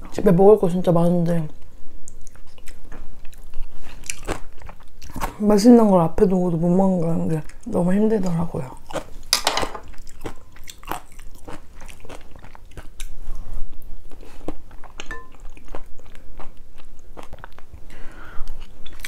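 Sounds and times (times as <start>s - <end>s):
person chewing with mouth clicks: 1.6s - 5.4s, 7.4s - 9.2s, 9.9s - 19.0s.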